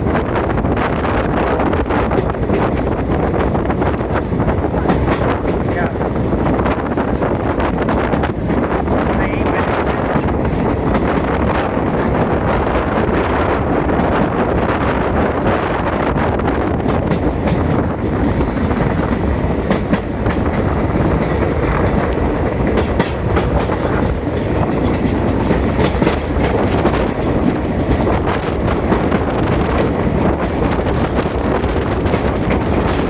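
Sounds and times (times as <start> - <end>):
train rumbling along track: 0.0 - 33.0
wheels clacking over rail joints: 6.5 - 33.0.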